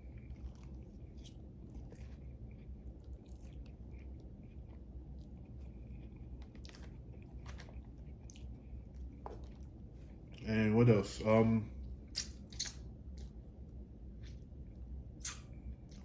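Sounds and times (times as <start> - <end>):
man chewing food: 0.0 - 10.4, 11.8 - 16.0
mouth clicks and smacks: 12.1 - 13.3, 15.2 - 16.0.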